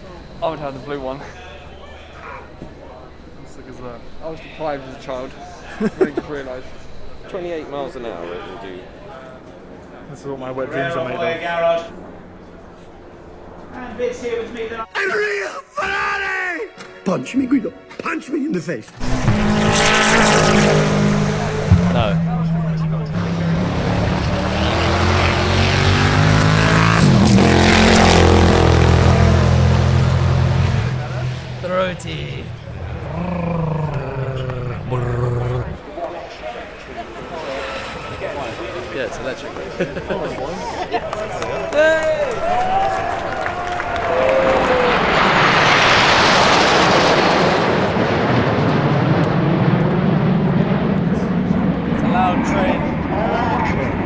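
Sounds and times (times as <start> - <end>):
car engine passing at speed: 19.0 - 54.0.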